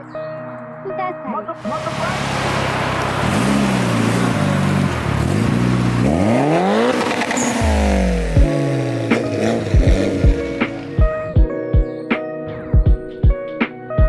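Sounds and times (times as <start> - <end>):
car engine revving hard: 1.6 - 11.2.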